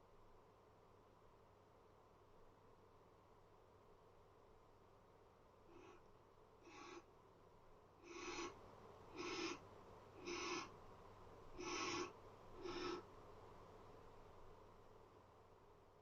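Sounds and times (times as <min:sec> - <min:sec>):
barn owl rasping hiss calls: 0:06.6 - 0:07.1, 0:08.0 - 0:09.6, 0:10.2 - 0:10.8, 0:11.5 - 0:13.1.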